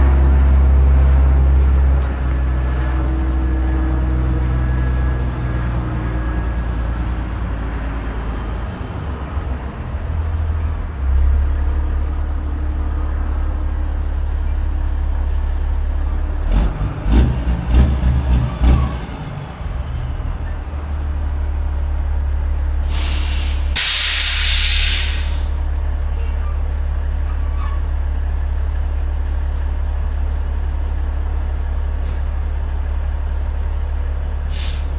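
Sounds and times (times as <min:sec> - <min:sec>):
diesel truck engine running: 0:00.0 - 0:34.9
air brakes hissing: 0:22.8 - 0:25.6, 0:34.5 - 0:34.9.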